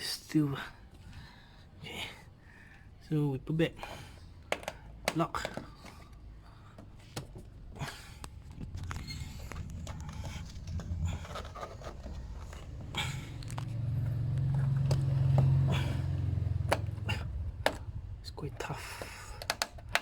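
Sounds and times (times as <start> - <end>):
low rumble: 8.3 - 18.2
plastic trim scraping: 8.5 - 13.7
plastic clips clicking: 18.6 - 20.0.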